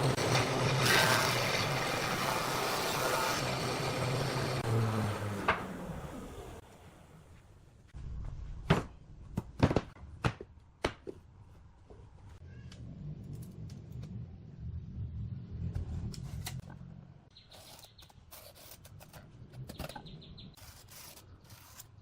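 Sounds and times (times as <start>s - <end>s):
power tool motor winding down: 0.0s - 6.6s.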